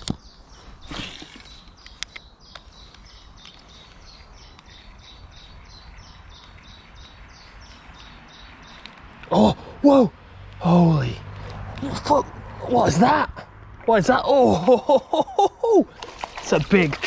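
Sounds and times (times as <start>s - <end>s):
small bird chirping: 0.0s - 9.2s
sharp clicks: 1.1s - 4.7s, 6.1s - 9.3s.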